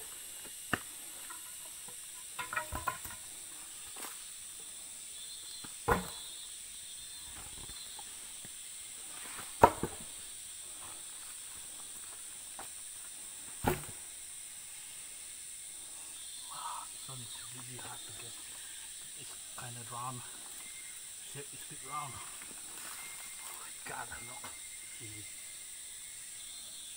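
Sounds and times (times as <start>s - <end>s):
steady hiss: 0.0s - 26.9s
sharp knocks: 2.4s - 3.2s, 5.8s - 6.2s.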